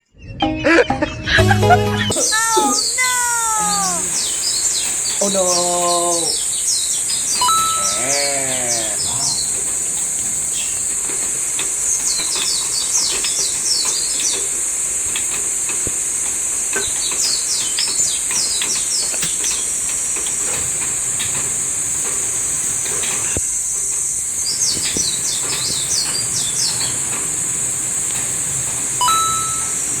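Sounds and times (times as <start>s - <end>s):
high-pitched hiss: 2.1s - 30.0s
small birds chirping: 2.1s - 30.0s.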